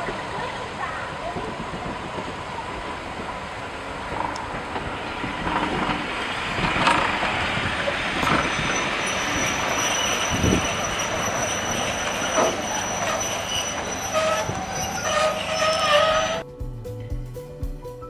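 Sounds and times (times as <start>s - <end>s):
train wheels rumbling on rails: 0.0s - 16.4s
high wheel squeal: 5.0s - 16.4s.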